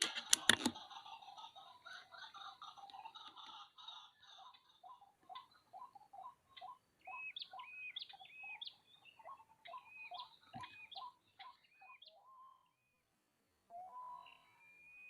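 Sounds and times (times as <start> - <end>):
sharp click: 0.0 - 0.8.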